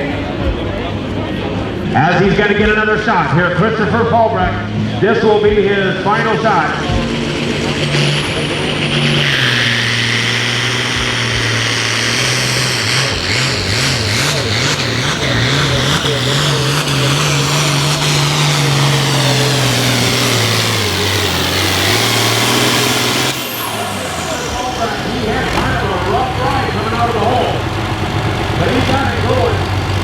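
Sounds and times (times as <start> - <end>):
tractor engine running hard: 0.0 - 30.0
turbo whine: 6.0 - 30.0.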